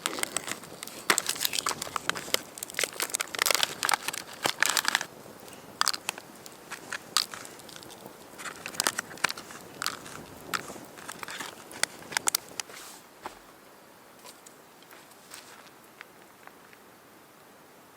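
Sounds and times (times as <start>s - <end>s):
twigs snapping: 0.0s - 13.5s
dry leaves and twigs crunching: 0.0s - 13.6s, 14.2s - 16.8s.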